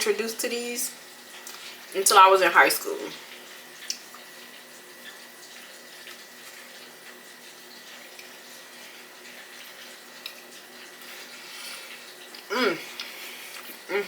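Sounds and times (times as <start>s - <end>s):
person chewing food: 8.0s - 14.0s.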